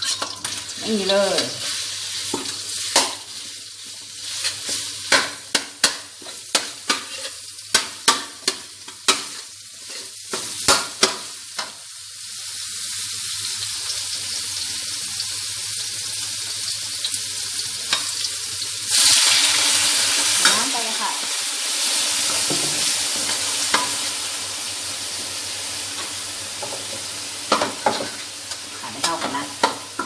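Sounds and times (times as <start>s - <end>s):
meat sizzling in hot oil: 0.0s - 30.0s
spatula scraping a pan: 5.8s - 11.1s.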